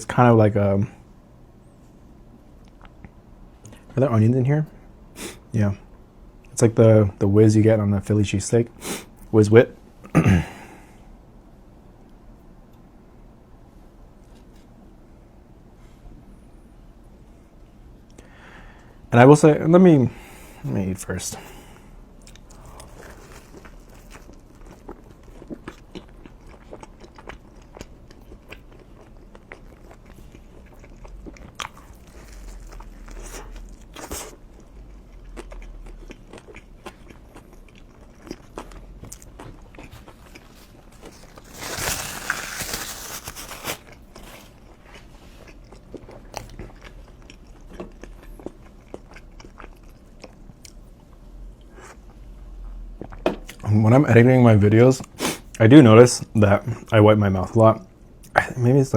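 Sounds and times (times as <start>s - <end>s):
chewing a soft sandwich: 2.5s - 3.9s, 20.5s - 53.7s.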